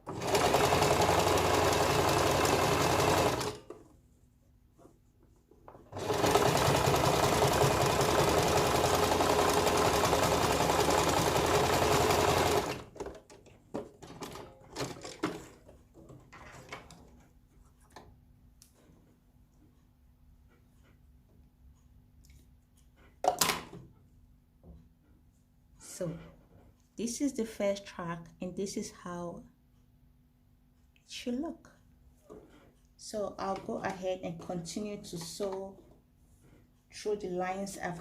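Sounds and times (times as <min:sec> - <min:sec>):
sewing machine running: 0:00.0 - 0:03.7, 0:05.9 - 0:13.0.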